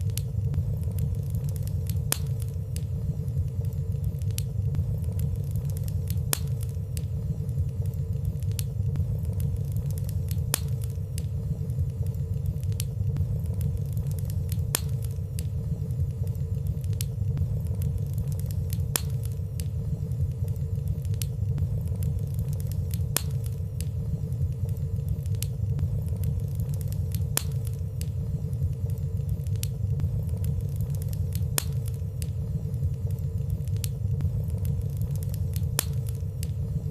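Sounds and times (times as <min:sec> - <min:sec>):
fire crackling: 0:00.0 - 0:36.9
wood fire rumbling: 0:00.0 - 0:36.9.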